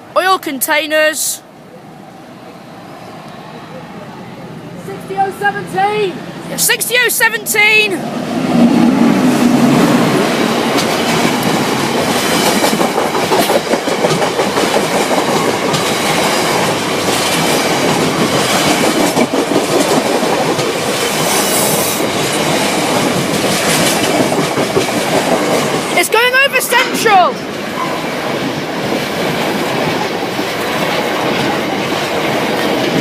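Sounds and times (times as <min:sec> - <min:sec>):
train wheels clattering over rail joints: 0:10.1 - 0:26.0.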